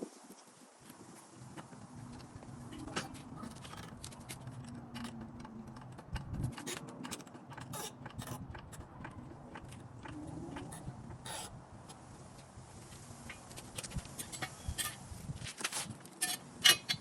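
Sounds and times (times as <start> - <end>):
metal tools clicking and scraping: 2.8 - 12.0, 13.3 - 15.0, 16.1 - 17.0.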